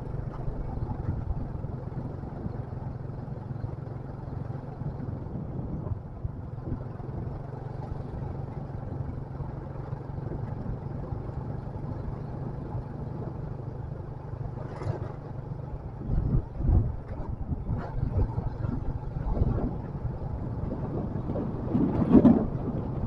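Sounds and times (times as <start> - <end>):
wind buffeting microphone: 0.0 - 2.8, 4.7 - 9.3, 14.5 - 23.0
motorcycle engine running: 0.0 - 23.0.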